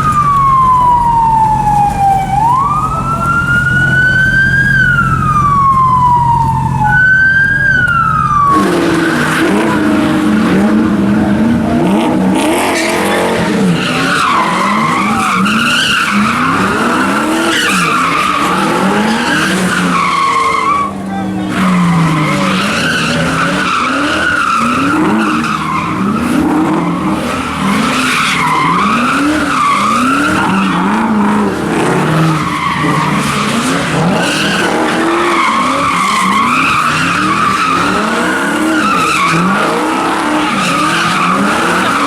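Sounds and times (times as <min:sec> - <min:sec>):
siren wailing: 0:00.0 - 0:42.0
car revving hard: 0:03.3 - 0:42.0
tyres squealing: 0:11.7 - 0:42.0.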